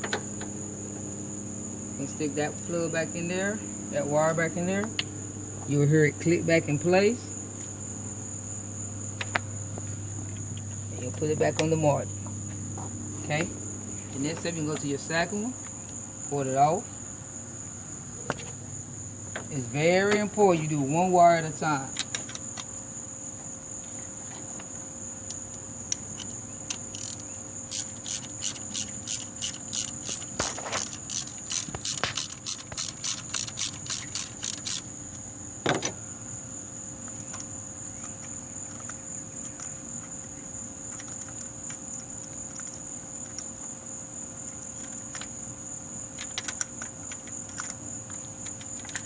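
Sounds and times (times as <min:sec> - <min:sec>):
ratchet wrench clicking: 0:25.9 - 0:34.9.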